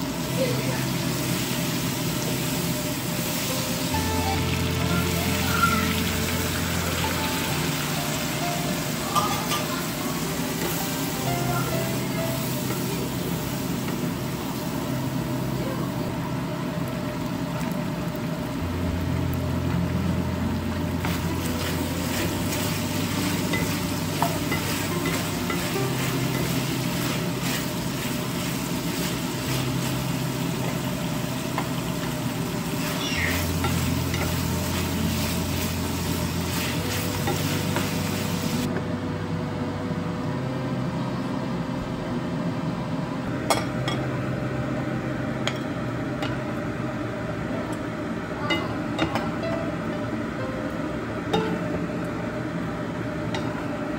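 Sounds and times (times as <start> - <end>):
chicken sizzling in a frying pan: 0.0 - 38.7.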